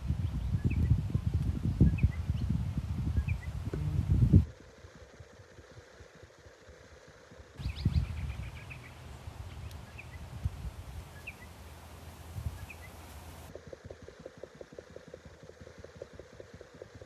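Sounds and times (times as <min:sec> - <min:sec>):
small bird chirping: 0:00.0 - 0:04.5, 0:07.6 - 0:13.5
wind buffeting microphone: 0:00.0 - 0:04.5, 0:07.6 - 0:14.0.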